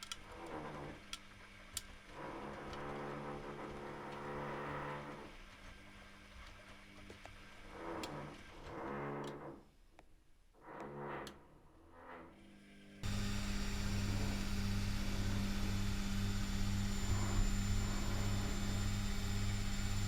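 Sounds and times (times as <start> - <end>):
electrical hum with low buzz: 13.0 - 20.0
washing machine drum motor whine: 13.0 - 20.0.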